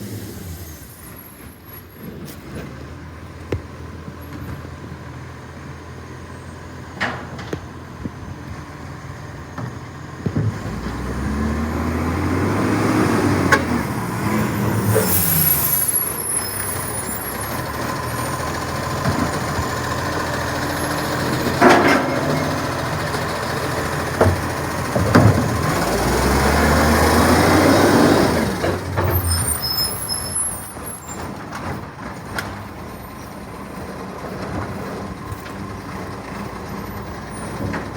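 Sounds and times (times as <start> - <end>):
diesel truck engine revving: 0.0 - 37.9
air brake hiss: 14.3 - 17.3.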